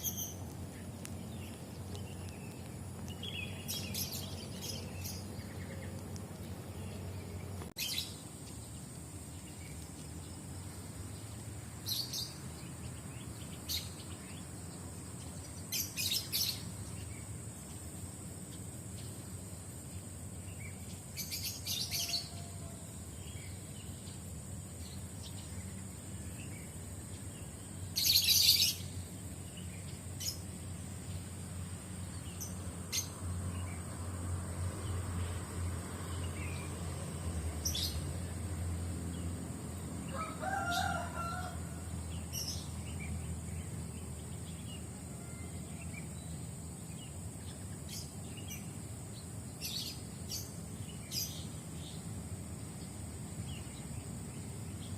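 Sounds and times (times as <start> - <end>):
birds chirping: 0.0 - 34.0
rooster crowing: 21.9 - 23.1, 40.1 - 41.9, 45.1 - 45.7.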